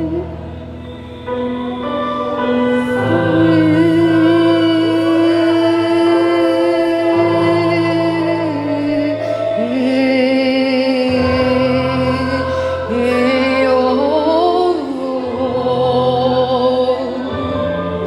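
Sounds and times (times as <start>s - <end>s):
sustained instrumental backing: 0.0s - 18.0s
voices singing held notes: 0.0s - 18.0s.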